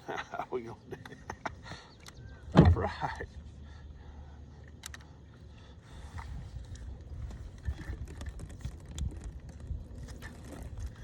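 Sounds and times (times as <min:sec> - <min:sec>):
low rumbling handling noise: 0:02.2 - 0:03.2, 0:06.0 - 0:11.0.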